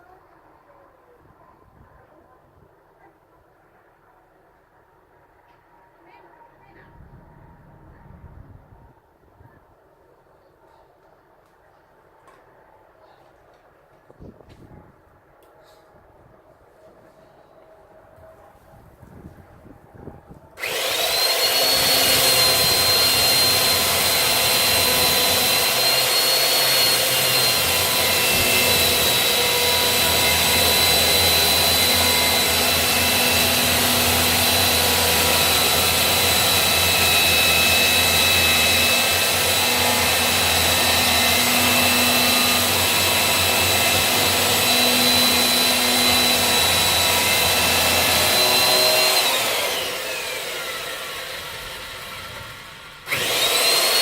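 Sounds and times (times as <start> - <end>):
electric chainsaw motor whining: 20.6 - 54.0.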